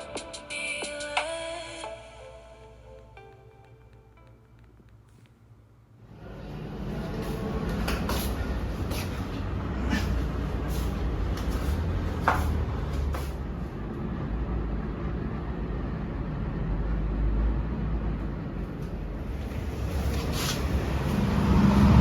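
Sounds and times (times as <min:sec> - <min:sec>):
vehicle rumble: 0:04.6 - 0:22.0.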